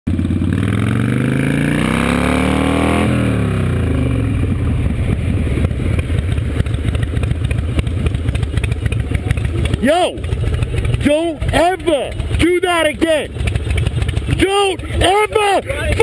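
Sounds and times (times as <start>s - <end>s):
motorcycle engine revving: 0.1s - 16.0s.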